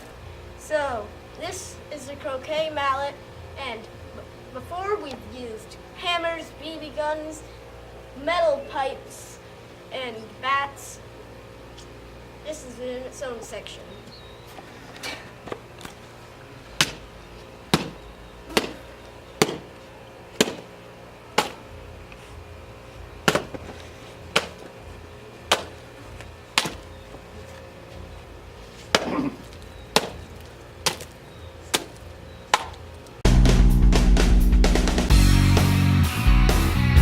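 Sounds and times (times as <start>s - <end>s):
mallet smashing a watermelon: 17.7s - 18.8s.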